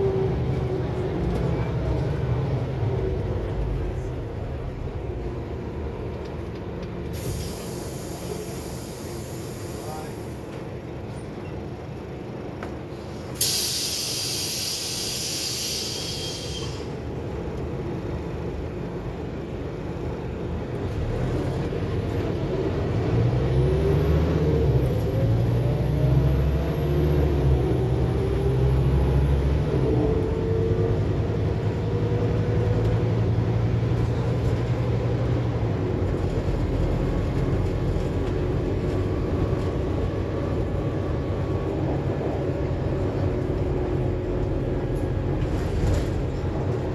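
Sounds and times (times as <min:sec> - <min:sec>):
bus diesel engine accelerating: 0:00.0 - 0:46.9
compressed air hiss: 0:13.3 - 0:16.9.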